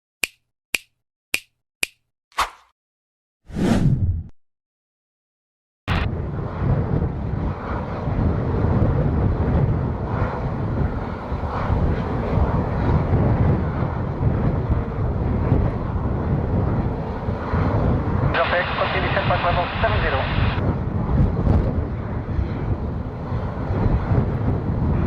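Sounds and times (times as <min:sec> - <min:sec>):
jet engines running: 0:05.9 - 0:25.0
strong wind on microphone: 0:05.9 - 0:25.0.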